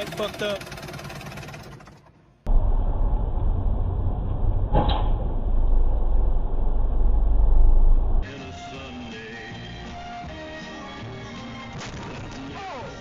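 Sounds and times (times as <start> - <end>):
vehicle rumble and road noise: 0.0 - 8.3.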